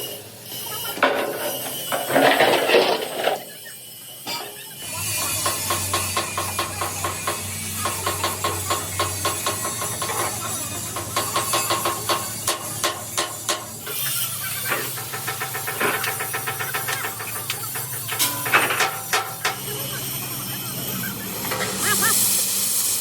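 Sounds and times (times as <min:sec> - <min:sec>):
sharp metal clicks and knocks: 0:14.6 - 0:19.6.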